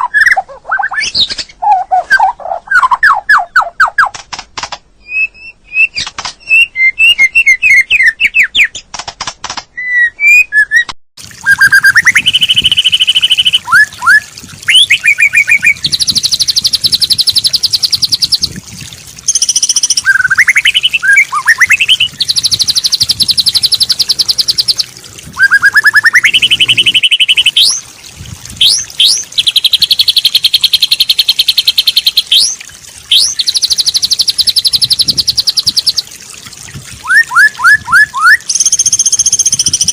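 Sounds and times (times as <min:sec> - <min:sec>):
songbird chirps and trills: 0:05.0 - 0:09.0, 0:09.7 - 0:39.9
buzzing bird trills and whistles: 0:37.0 - 0:39.9.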